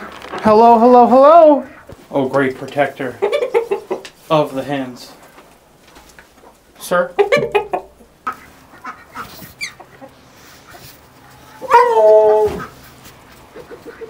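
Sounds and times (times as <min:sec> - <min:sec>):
chickens clucking: 0:00.0 - 0:14.0
rooster crowing: 0:11.5 - 0:12.6.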